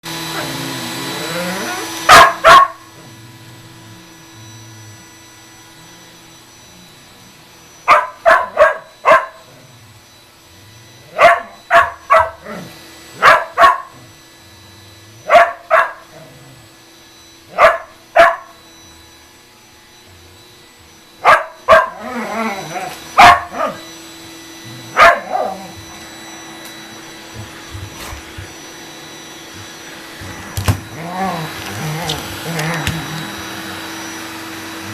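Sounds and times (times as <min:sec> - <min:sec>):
vacuum cleaner hum: 0:00.0 - 0:34.9
dog barking: 0:02.1 - 0:02.9, 0:07.9 - 0:09.4, 0:11.1 - 0:12.6, 0:13.2 - 0:14.0, 0:15.3 - 0:16.0, 0:17.5 - 0:18.6, 0:21.2 - 0:22.0, 0:23.2 - 0:23.8, 0:24.9 - 0:25.7.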